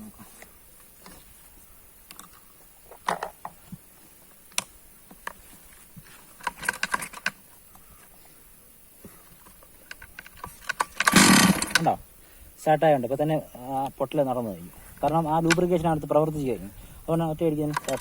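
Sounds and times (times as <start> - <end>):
clicks and knocks handling chainsaw: 2.1 - 3.7, 6.0 - 7.9, 9.2 - 12.0, 15.0 - 15.8, 17.4 - 18.0.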